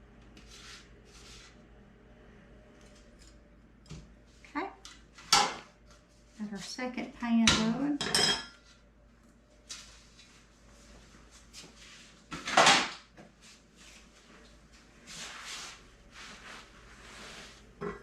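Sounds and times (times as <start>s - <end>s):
kitchen knocks and rustles: 12.3s - 13.4s.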